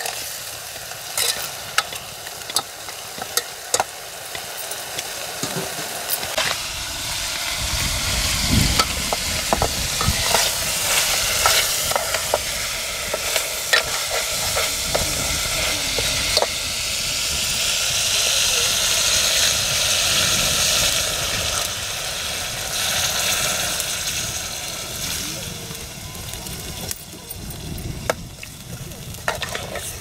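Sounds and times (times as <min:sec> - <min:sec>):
curry sizzling in pot: 0:00.0 - 0:30.0
metal ladle scraping pot: 0:01.2 - 0:03.9, 0:08.8 - 0:16.5.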